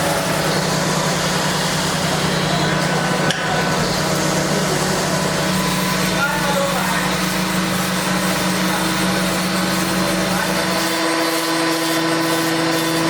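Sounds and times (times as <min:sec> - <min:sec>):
machine hum: 0:00.0 - 0:13.0
workshop noise: 0:00.0 - 0:13.0.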